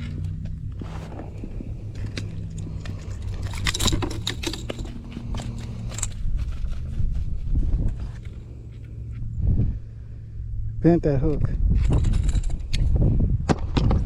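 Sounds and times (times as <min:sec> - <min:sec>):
steady low hum: 0:00.0 - 0:13.4
metal hook clicking and rattling: 0:01.1 - 0:06.2.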